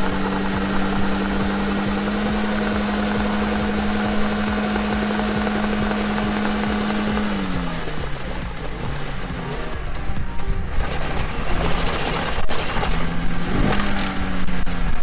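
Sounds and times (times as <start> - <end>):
car engine at high revs: 0.0 - 15.0.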